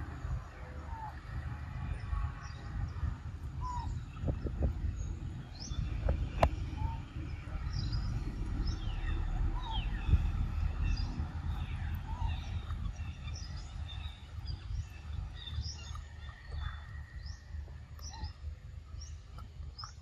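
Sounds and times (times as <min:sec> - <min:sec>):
birds chirping: 0:00.0 - 0:20.0
steady low rumble: 0:00.0 - 0:20.0.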